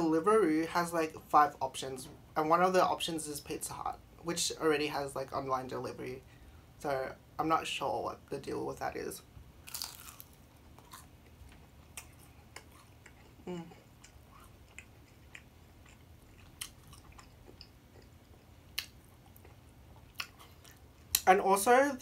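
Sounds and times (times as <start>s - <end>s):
chewing with mouth clicks: 9.7s - 21.2s
person humming: 13.4s - 13.9s.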